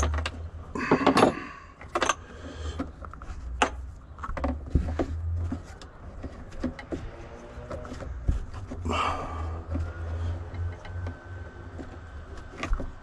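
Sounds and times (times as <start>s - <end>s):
small clicks and rattles: 9.6s - 13.0s.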